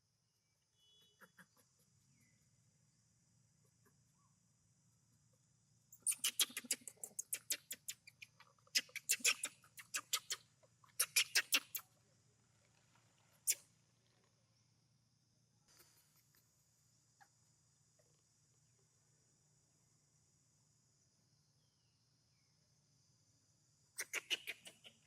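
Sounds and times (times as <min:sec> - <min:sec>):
monkey clicking calls: 0:06.0 - 0:11.8, 0:24.0 - 0:25.0.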